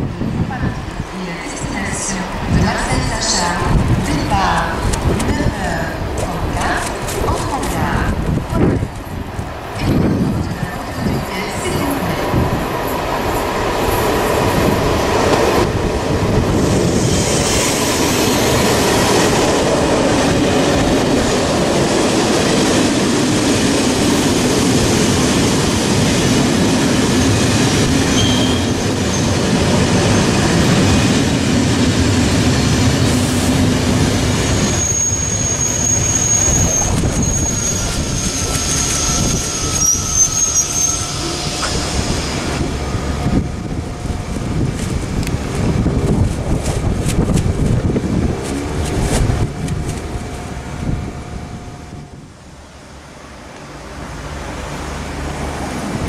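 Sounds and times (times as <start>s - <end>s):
train wheels rumbling on rail: 0.0s - 56.0s
high-pitched wheel squeal: 28.1s - 29.3s, 34.4s - 42.4s.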